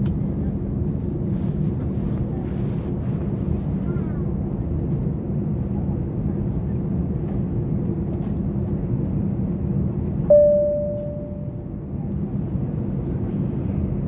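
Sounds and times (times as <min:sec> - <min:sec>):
airliner cabin drone: 0:00.0 - 0:14.0.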